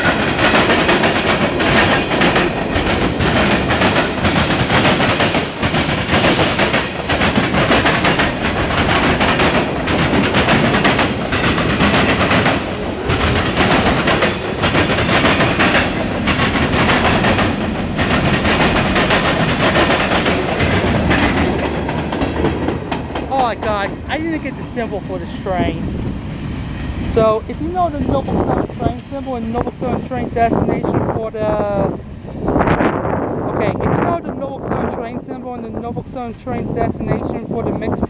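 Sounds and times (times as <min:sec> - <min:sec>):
train wheels clattering over rail joints: 0:00.0 - 0:24.6
train rolling rumble: 0:00.0 - 0:38.0.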